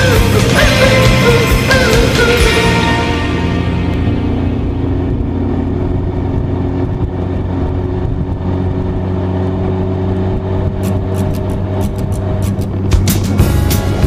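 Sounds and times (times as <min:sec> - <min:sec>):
road rush: 0:00.0 - 0:14.0
sports car engine droning: 0:00.0 - 0:14.0
wind: 0:03.8 - 0:14.0.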